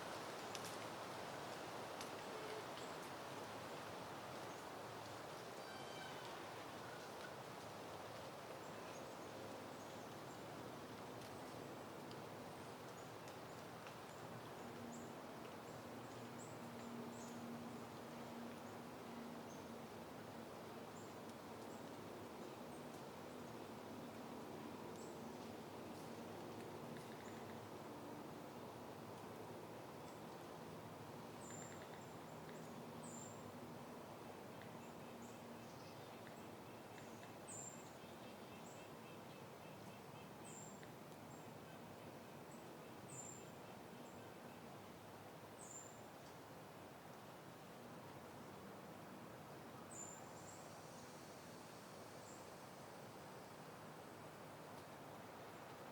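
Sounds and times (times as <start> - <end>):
soft wind: 0.0 - 55.9
light wind hissing: 45.0 - 55.9.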